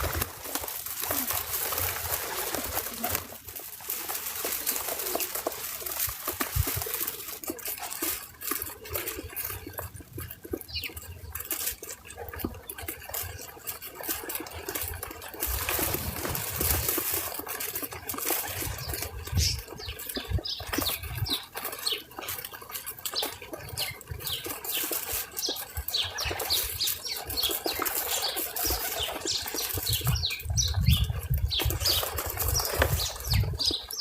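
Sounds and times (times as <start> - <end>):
rustling: 0.0 - 9.8, 14.0 - 23.4
small birds chirping: 0.0 - 11.9, 13.1 - 34.0.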